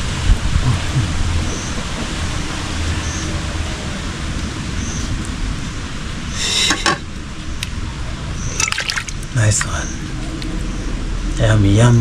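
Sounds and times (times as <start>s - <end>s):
steady hissing noise: 0.0s - 12.0s.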